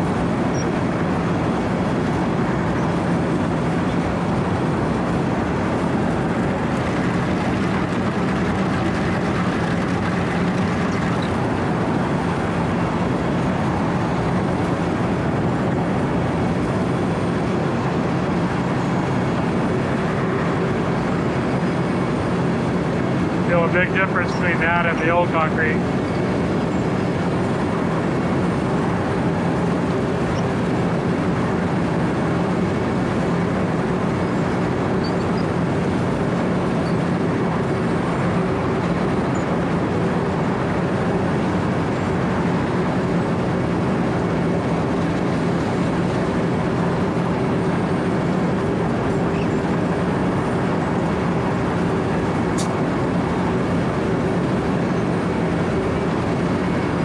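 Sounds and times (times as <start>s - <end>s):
diesel engine humming: 0.0s - 57.0s
cutting drum grinding road surface: 5.8s - 12.5s.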